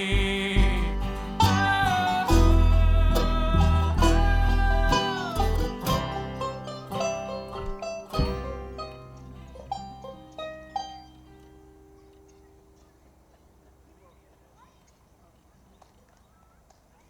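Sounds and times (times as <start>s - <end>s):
bass line: 0.0s - 11.1s
banjo: 0.0s - 12.2s
plucked acoustic guitar: 0.0s - 12.7s.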